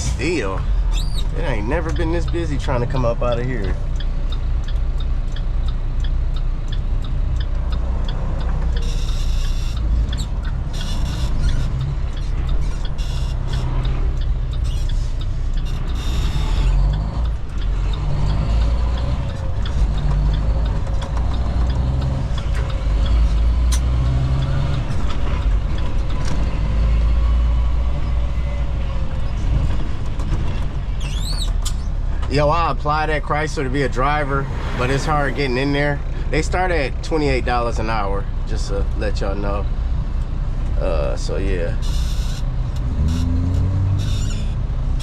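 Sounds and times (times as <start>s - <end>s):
truck engine rumbling: 0.0s - 45.0s.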